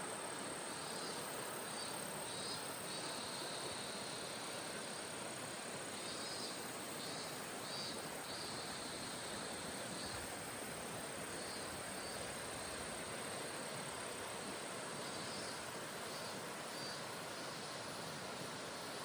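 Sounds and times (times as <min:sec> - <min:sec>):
high insect trill: 0:00.0 - 0:19.0
insects chirping in bursts: 0:00.0 - 0:19.0.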